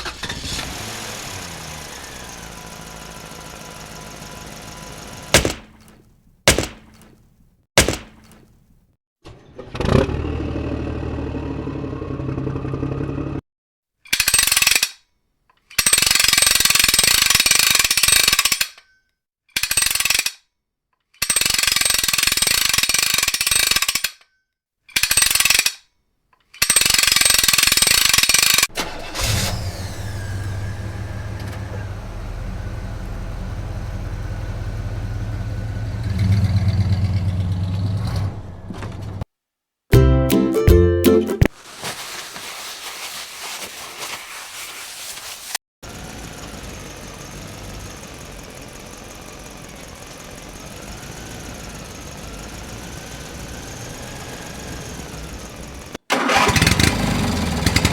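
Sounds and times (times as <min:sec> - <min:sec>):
engine running: 0:00.0 - 0:07.0, 0:09.9 - 0:13.4, 0:28.8 - 0:38.7, 0:45.8 - 0:57.9
hammer drill bursts: 0:04.9 - 0:05.9, 0:06.5 - 0:07.1
sharp clicks: 0:05.4 - 0:08.6
truck engine idling: 0:45.8 - 0:57.9.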